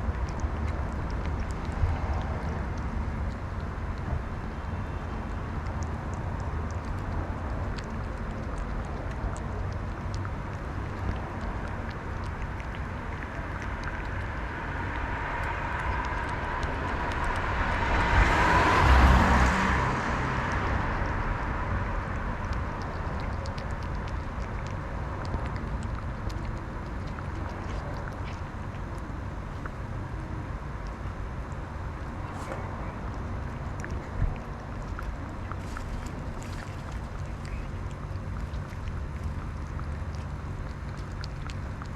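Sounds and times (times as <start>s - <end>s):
outdoor rumble: 0.0s - 41.9s
vehicle passing by: 1.0s - 3.4s, 13.0s - 24.2s, 26.5s - 40.3s.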